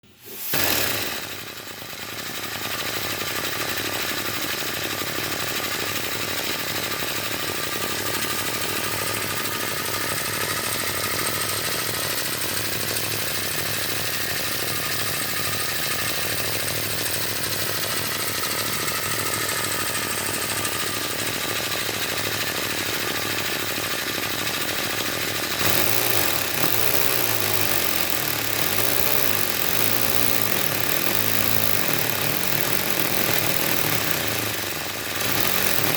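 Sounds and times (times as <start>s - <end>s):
air hiss: 0.0s - 1.3s.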